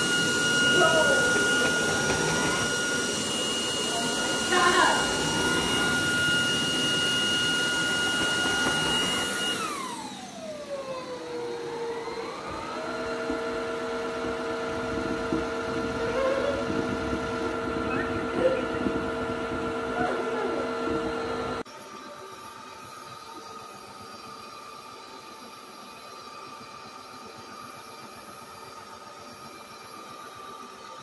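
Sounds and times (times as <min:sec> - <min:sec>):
vacuum motor whine: 0:00.0 - 0:31.0.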